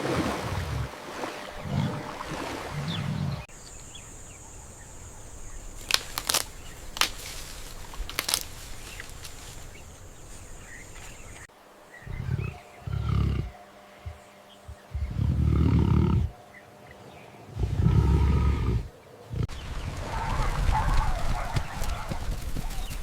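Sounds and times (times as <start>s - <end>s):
deep wild animal calls: 0.0s - 23.0s
sharp clicks: 5.8s - 7.4s.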